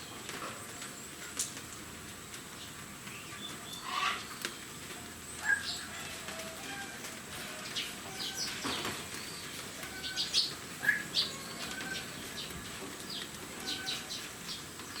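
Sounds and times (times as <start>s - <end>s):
background hiss: 0.0s - 15.0s
small birds chirping: 2.4s - 6.5s, 7.4s - 15.0s.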